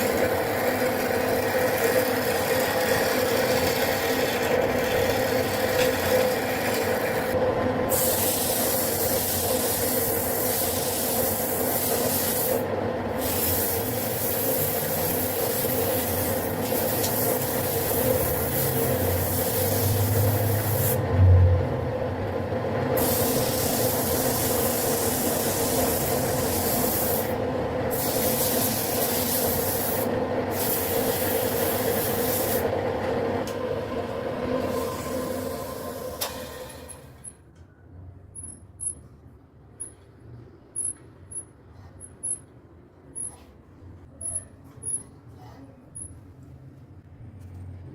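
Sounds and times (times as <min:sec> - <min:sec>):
lathe motor hum: 0:00.0 - 0:07.9
tool hissing on spinning wood: 0:00.0 - 0:21.0, 0:23.0 - 0:32.7.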